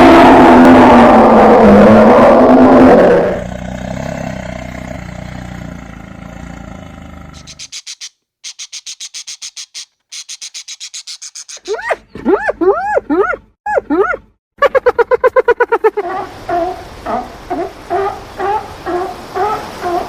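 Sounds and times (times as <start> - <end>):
big cat roar: 0.0 - 5.6
high-pitched chirps: 7.4 - 11.8.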